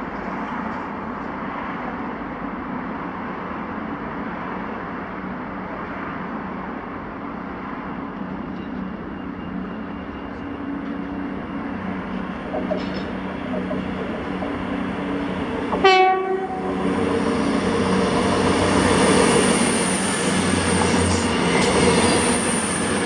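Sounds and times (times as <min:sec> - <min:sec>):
diesel train rumble and hiss: 0:05.7 - 0:23.0.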